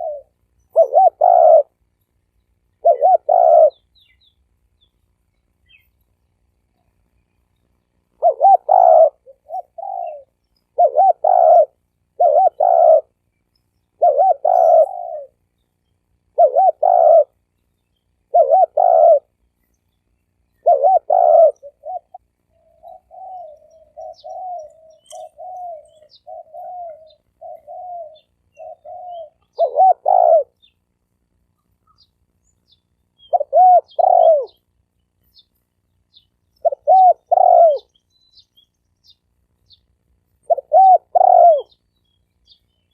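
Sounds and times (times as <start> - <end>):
dove cooing: 0.0 - 1.8, 2.7 - 4.0, 8.1 - 13.2, 14.0 - 15.4, 16.2 - 17.4, 18.2 - 19.4, 20.5 - 30.7, 33.2 - 34.6, 36.6 - 37.9, 40.4 - 41.8.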